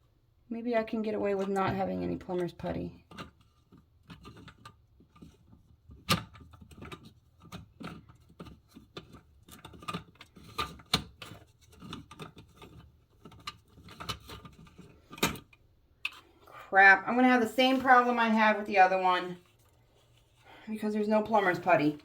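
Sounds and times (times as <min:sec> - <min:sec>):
small parts clicking and rustling: 0:01.4 - 0:16.4.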